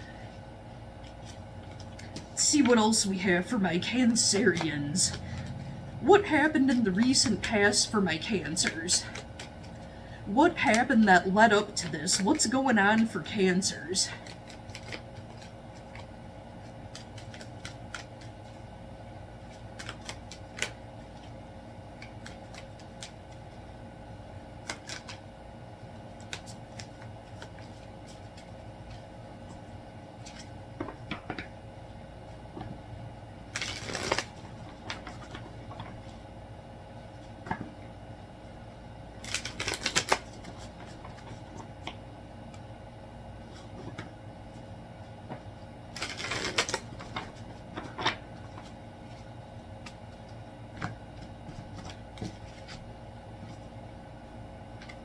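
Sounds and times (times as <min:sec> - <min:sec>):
steady low hum: 0:00.0 - 0:55.0
cards being shuffled: 0:01.0 - 0:02.8, 0:04.0 - 0:05.8, 0:14.1 - 0:18.6, 0:19.4 - 0:21.4, 0:22.0 - 0:23.6, 0:24.6 - 0:25.3, 0:26.1 - 0:31.5, 0:33.5 - 0:36.2, 0:39.2 - 0:42.6, 0:45.3 - 0:53.7.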